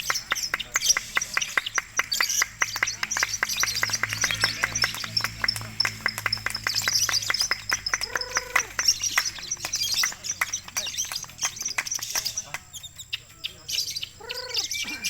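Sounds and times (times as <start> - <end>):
high twittering: 0.0 - 15.0
lovebirds chirping: 0.0 - 15.0.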